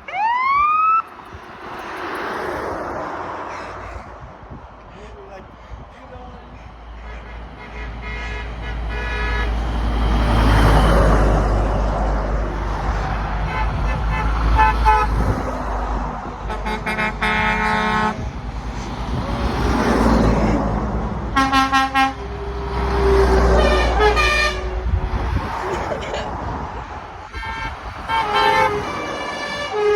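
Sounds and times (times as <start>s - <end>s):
trucks driving past: 0.0s - 29.9s
truck horn blasts: 7.0s - 9.7s, 13.3s - 15.3s, 16.4s - 18.3s, 21.3s - 25.4s, 27.3s - 29.9s.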